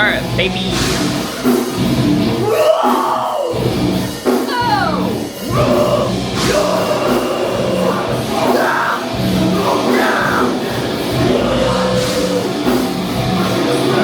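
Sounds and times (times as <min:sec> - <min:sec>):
live rock band playing: 0:00.0 - 0:14.0
person singing: 0:04.5 - 0:14.0.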